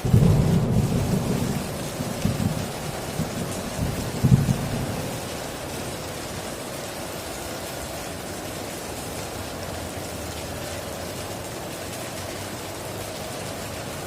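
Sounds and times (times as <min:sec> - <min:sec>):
thunder rumble: 0:00.0 - 0:06.4
heavy rain hissing: 0:00.0 - 0:14.0.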